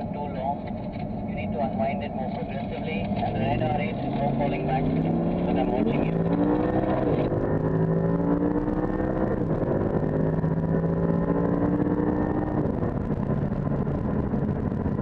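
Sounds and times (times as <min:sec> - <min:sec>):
car engine accelerating: 0:00.0 - 0:15.0
road rumble: 0:00.0 - 0:15.0.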